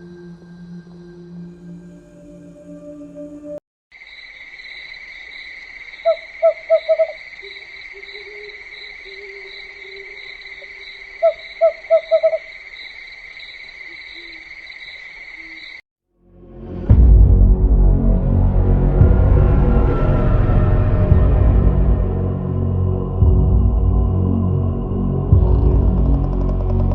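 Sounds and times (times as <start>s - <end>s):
owl hooting: 6.0s - 12.6s.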